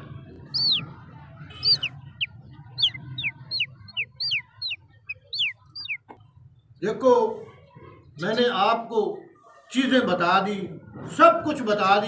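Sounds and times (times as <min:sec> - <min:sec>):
bird chirping: 0:00.0 - 0:06.2.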